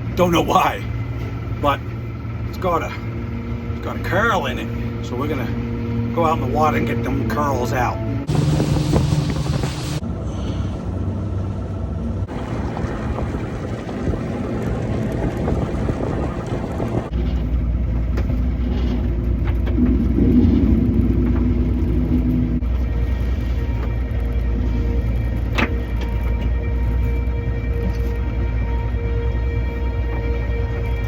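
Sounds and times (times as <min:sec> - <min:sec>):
water noise: 0:00.0 - 0:10.1, 0:10.9 - 0:31.0
boat engine running: 0:00.0 - 0:31.0
rushing wind: 0:00.0 - 0:31.0.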